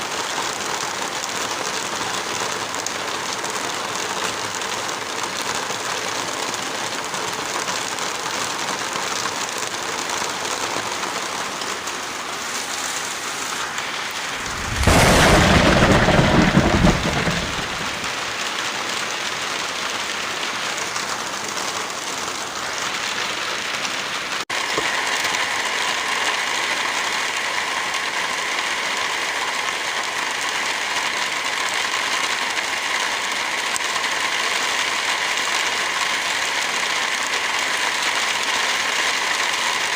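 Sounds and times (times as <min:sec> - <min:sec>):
heavy rain falling: 0:00.0 - 0:39.9
thunderclap rumbling: 0:14.0 - 0:18.5.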